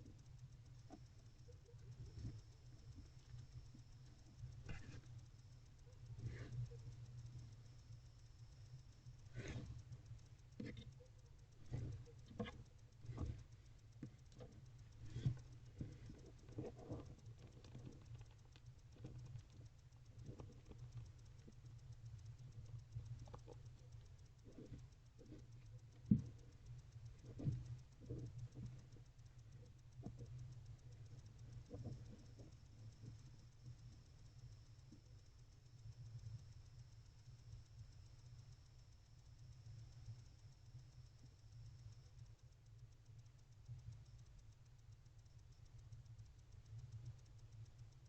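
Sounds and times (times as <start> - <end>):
steady low hum: 0.0 - 48.0
owl feet scratching and tapping: 10.5 - 29.1.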